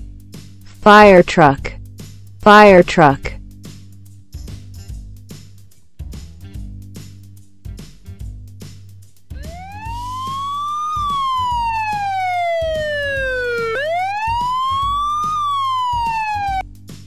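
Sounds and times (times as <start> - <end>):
fire truck siren wailing: 9.4 - 16.6.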